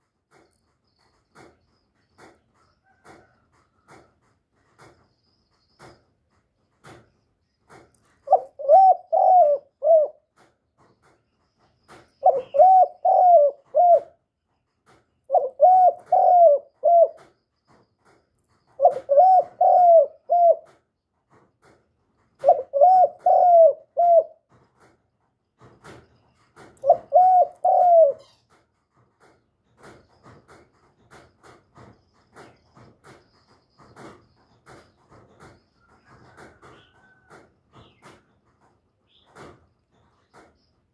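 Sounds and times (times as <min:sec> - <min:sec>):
faint clicks and ticks: 0:00.0 - 0:08.4
dove cooing: 0:08.2 - 0:10.3, 0:12.2 - 0:14.2, 0:15.3 - 0:17.4, 0:18.7 - 0:20.8, 0:22.4 - 0:24.5, 0:26.8 - 0:28.4.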